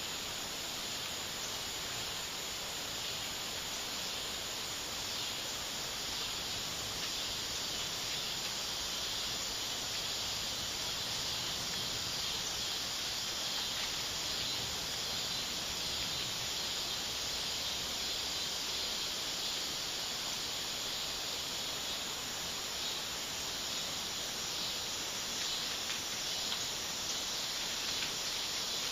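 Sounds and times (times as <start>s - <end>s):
insect chorus droning: 0.0s - 28.9s.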